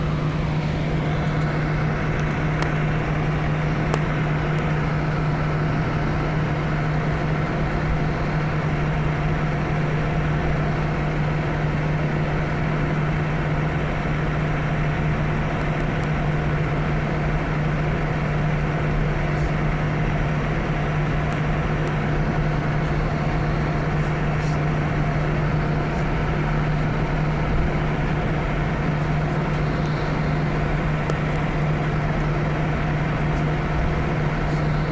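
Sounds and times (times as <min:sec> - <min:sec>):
aircraft cabin hum: 0:00.0 - 0:34.9.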